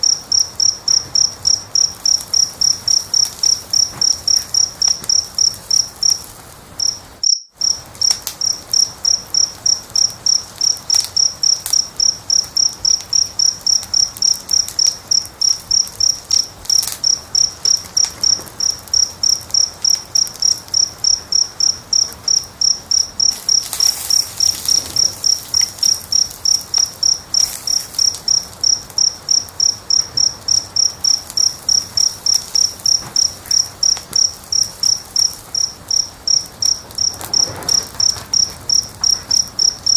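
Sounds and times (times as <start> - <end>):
cricket chirping: 0.0 - 39.9
wood fire crackling: 0.0 - 39.9.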